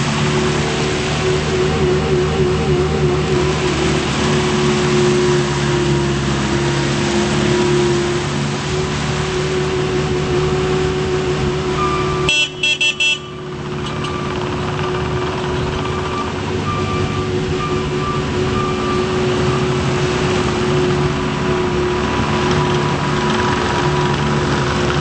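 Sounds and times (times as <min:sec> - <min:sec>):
diesel engine running: 0:00.0 - 0:25.0
horn toots: 0:11.7 - 0:14.3.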